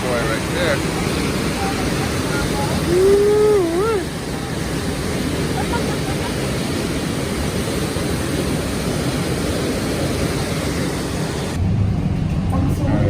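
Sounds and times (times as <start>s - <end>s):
waterfall roaring: 0.0s - 12.5s
deep dull rumble: 11.2s - 13.0s.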